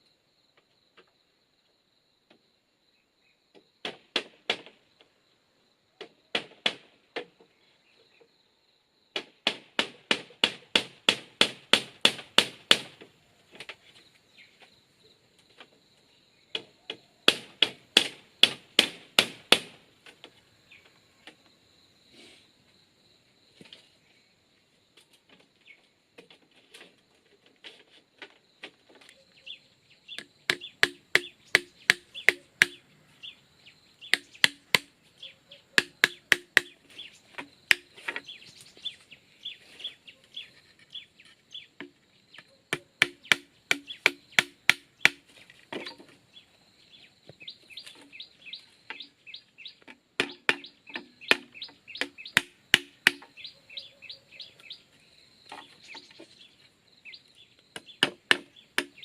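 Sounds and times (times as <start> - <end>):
tool striking bamboo: 3.8 - 4.8, 6.3 - 7.3, 9.2 - 13.1, 16.5 - 19.9, 30.1 - 32.8, 34.1 - 35.0, 35.7 - 38.4, 41.8 - 42.0, 42.7 - 46.1, 49.8 - 53.4, 57.8 - 59.0.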